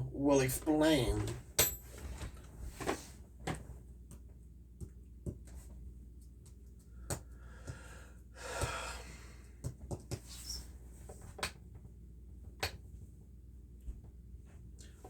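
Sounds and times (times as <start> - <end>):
person breathing or sighing: 7.4 - 9.3.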